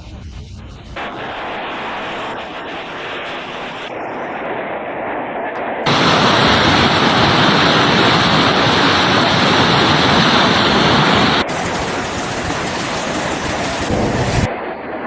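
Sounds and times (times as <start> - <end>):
water rushing: 5.9 - 14.5.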